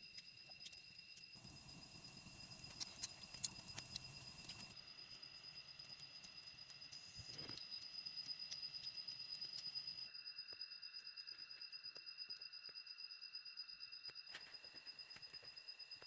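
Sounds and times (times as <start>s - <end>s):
light ticks: 0.0s - 4.8s
background noise: 0.0s - 16.0s
crickets chirping: 0.0s - 16.0s.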